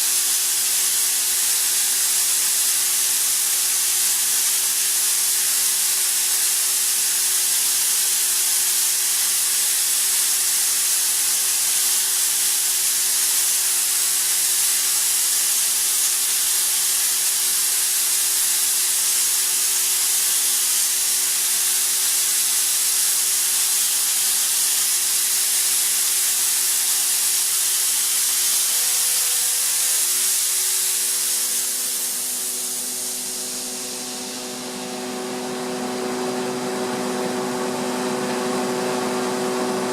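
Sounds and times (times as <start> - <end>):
air compressor hissing: 0.0 - 39.9
machine hum: 27.2 - 39.9.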